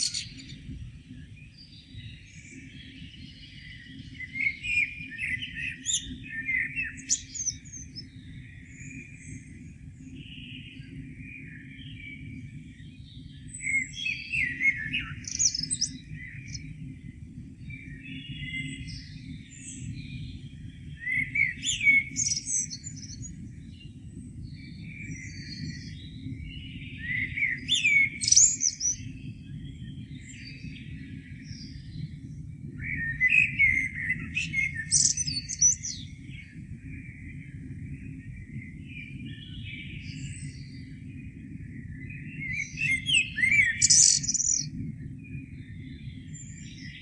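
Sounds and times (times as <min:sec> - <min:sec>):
songbirds singing: 0:00.0 - 0:47.0
steady low rumble: 0:05.7 - 0:43.0.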